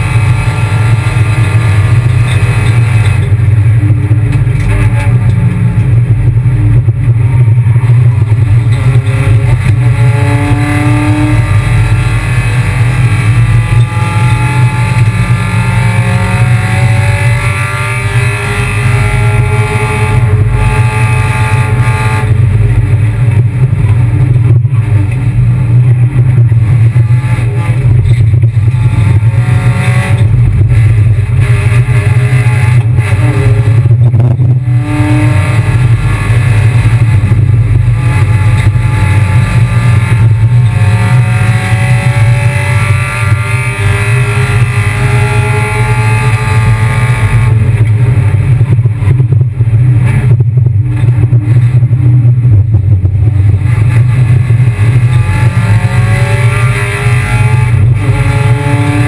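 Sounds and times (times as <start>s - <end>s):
low drone: 0.0s - 59.0s
race car engine running hard: 0.0s - 59.0s.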